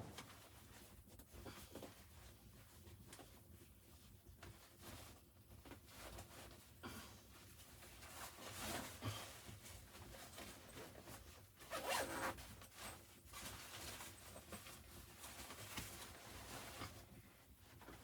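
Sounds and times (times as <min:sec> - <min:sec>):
faint zipper being pulled: 0:11.7 - 0:12.4.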